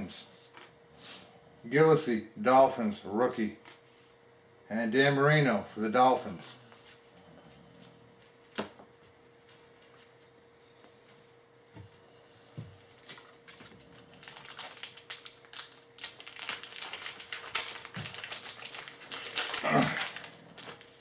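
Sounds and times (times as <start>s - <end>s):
card pack wrapper crinkling: 12.9s - 21.0s.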